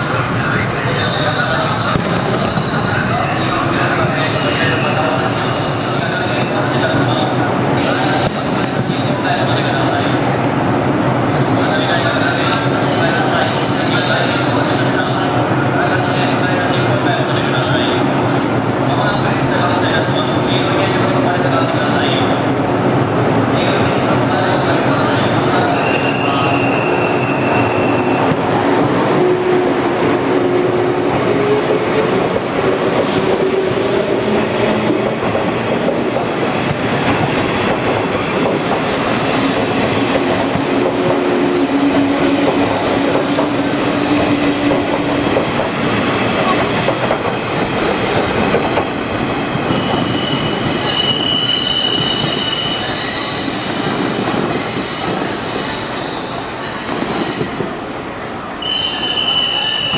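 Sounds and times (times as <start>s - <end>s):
train wheels rumbling on rail: 0.0s - 59.9s
high-pitched brake squeals: 49.7s - 57.4s, 58.6s - 59.9s.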